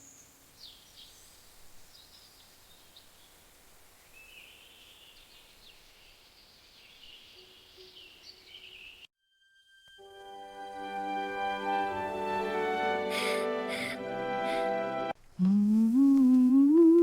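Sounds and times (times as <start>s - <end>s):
birds chirping: 0.0s - 9.1s
soft steady hiss: 0.0s - 9.1s, 15.0s - 17.0s.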